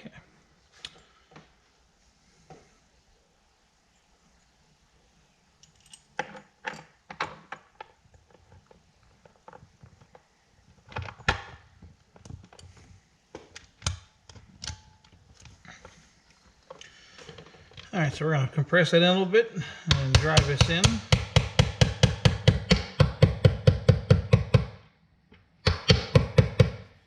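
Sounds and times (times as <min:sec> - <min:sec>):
small metal parts clicking and knocking: 0:05.6 - 0:12.9, 0:13.5 - 0:17.9.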